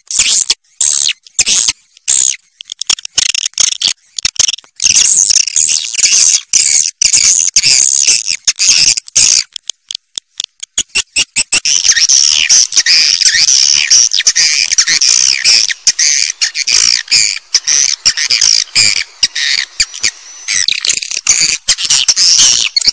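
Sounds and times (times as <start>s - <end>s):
swiftlets chattering twitter: 3.5s - 9.5s, 10.8s - 22.9s.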